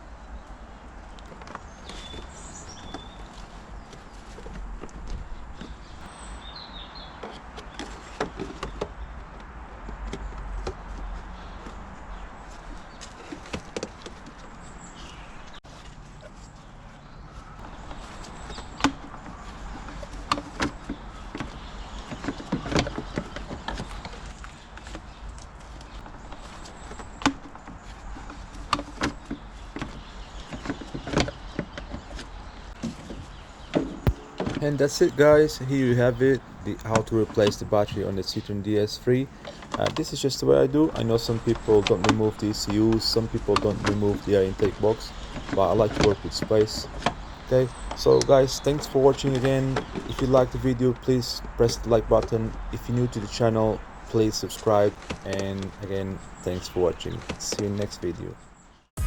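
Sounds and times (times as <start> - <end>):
bird chirps: 1.7 - 3.4, 34.0 - 58.9.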